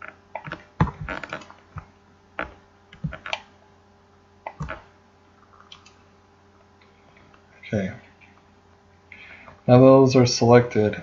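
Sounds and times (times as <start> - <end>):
computer mouse clicks: 5.5 - 6.0.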